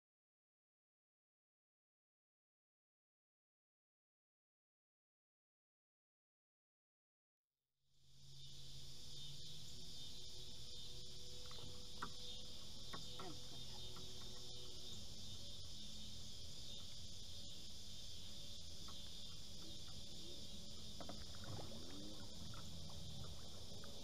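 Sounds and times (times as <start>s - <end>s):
crickets trilling: 8.0s - 24.0s
faint brief insect calls: 8.0s - 24.0s.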